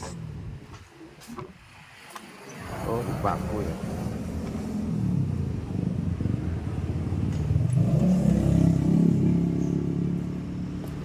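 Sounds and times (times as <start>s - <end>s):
engine revving: 2.6s - 11.0s.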